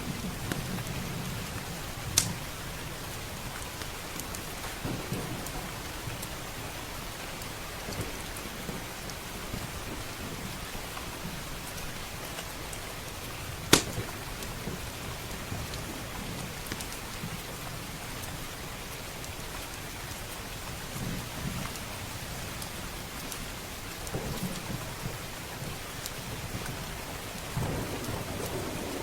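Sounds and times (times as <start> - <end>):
fire crackling and popping: 0.0 - 17.6
heavy rain: 0.0 - 29.0
low thunder rumble: 4.8 - 6.8, 27.5 - 29.0.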